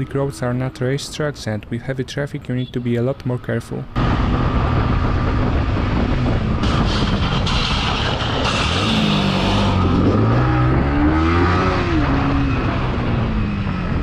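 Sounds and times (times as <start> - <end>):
wind on microphone: 4.0 - 14.0.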